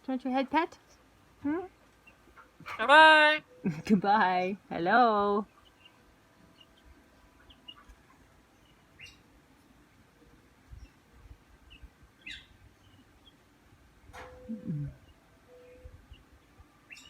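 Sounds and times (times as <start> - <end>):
faint bird chirps: 11.6 - 13.4, 14.2 - 17.0.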